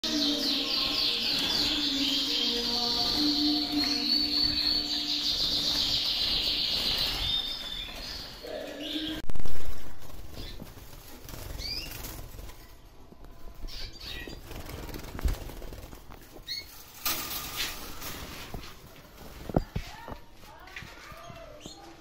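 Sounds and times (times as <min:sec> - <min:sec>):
canary trilling: 0:00.0 - 0:09.2.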